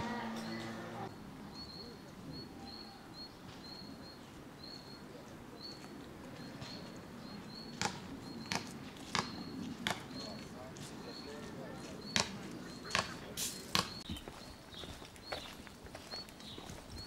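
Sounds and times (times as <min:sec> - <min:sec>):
faint outdoor background noise: 0:00.0 - 0:17.0
footsteps on gravel: 0:13.2 - 0:17.0.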